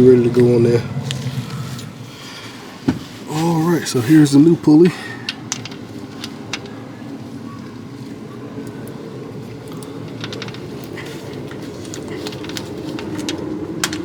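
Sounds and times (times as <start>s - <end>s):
low background hum: 0.0s - 14.0s
tools and parts clicking: 5.3s - 6.8s, 9.7s - 14.0s.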